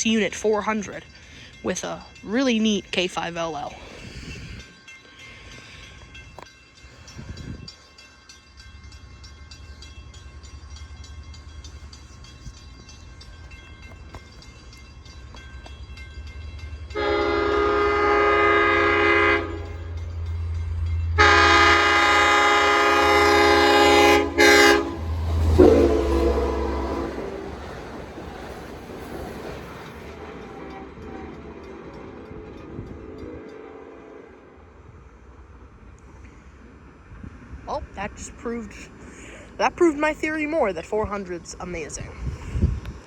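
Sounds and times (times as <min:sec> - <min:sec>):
diesel locomotive rumble: 0:00.0 - 0:43.0
train chime horn blasts: 0:16.8 - 0:27.5.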